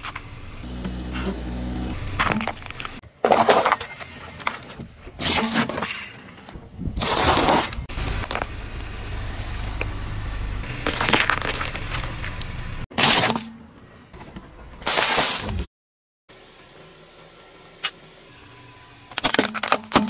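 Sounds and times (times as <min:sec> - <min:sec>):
car rumble: 0:00.0 - 0:03.0
tyres crunching objects: 0:00.0 - 0:04.0, 0:10.6 - 0:13.6.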